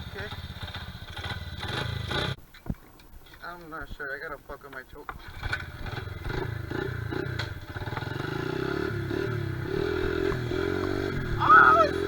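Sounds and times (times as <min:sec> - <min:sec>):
motorbike engine starting and running: 0:00.0 - 0:02.4, 0:05.1 - 0:12.0.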